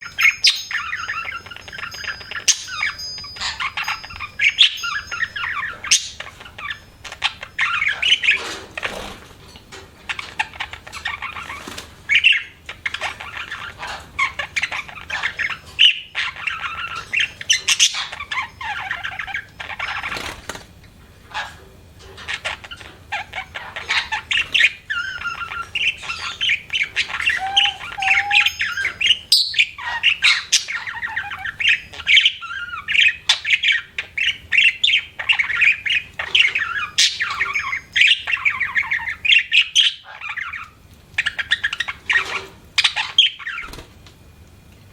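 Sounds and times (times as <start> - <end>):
budgerigar chattering and chirping: 0.0 - 9.1, 10.1 - 20.4, 22.2 - 43.8.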